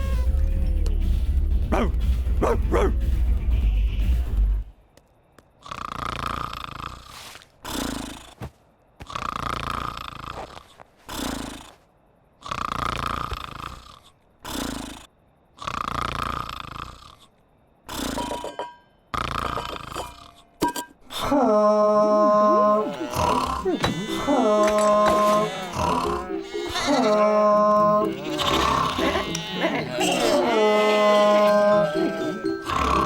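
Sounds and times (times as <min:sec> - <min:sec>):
cartoon snoring: 0:05.6 - 0:08.4, 0:09.0 - 0:11.8, 0:12.4 - 0:18.4, 0:19.1 - 0:20.4, 0:22.0 - 0:33.0
musical tones: 0:22.1 - 0:30.5, 0:31.4 - 0:33.0.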